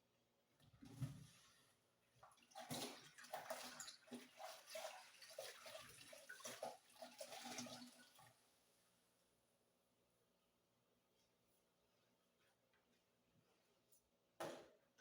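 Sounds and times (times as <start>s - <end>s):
cloth swishing in bucket of water: 0.8s - 8.8s
water splashing and dripping: 2.2s - 8.2s.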